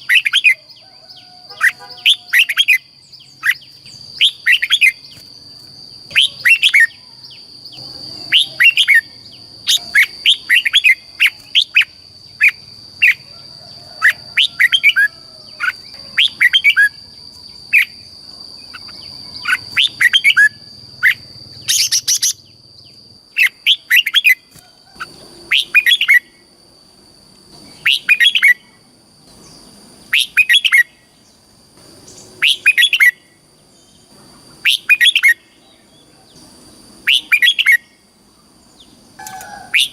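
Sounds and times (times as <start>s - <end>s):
bird singing whistled phrases: 6.1s - 7.4s, 8.1s - 13.2s, 32.4s - 33.2s, 37.0s - 37.9s.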